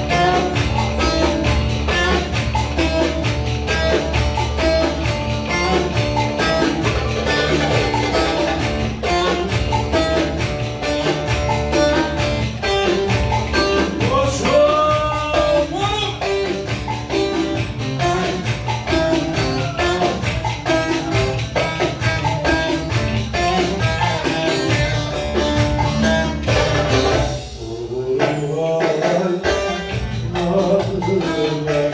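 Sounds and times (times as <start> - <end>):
folk dance music: 0.0 - 27.6
fast percussion beat: 0.0 - 31.9.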